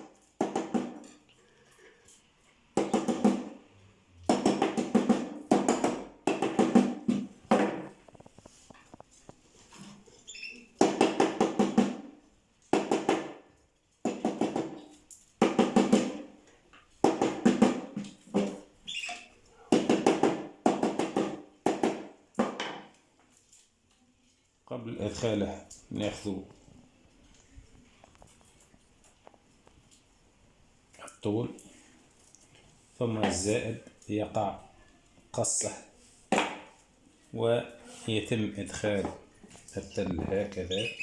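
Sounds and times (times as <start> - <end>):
wire tapping and rattling: 7.4 - 10.2, 25.6 - 30.2.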